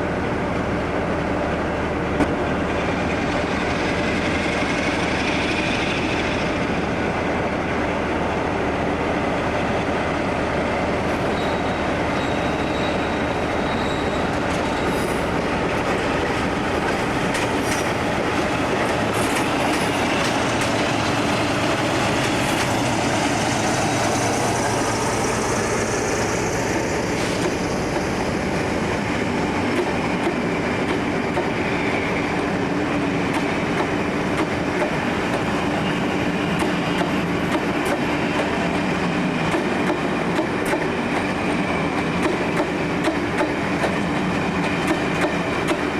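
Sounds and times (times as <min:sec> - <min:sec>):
train wheels on track: 0:00.0 - 0:45.9
faint high squeal: 0:11.2 - 0:15.2.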